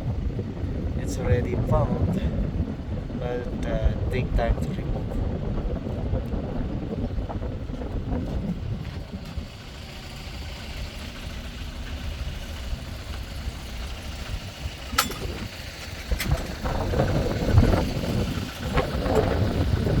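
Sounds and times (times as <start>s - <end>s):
diesel engine idling: 0.0s - 20.0s
sharp click: 14.9s - 15.5s.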